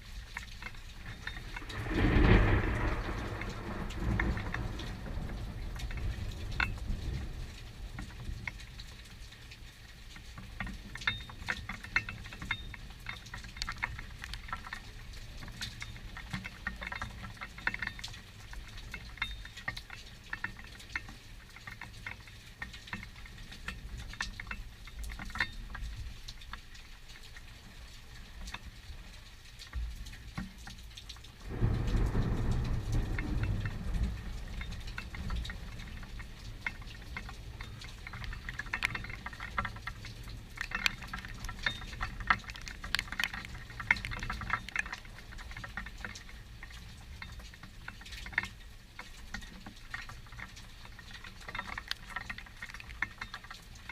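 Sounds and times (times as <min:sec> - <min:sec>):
steady rain: 0:00.0 - 0:53.9
thunder rumbling: 0:01.0 - 0:08.4, 0:31.4 - 0:44.3.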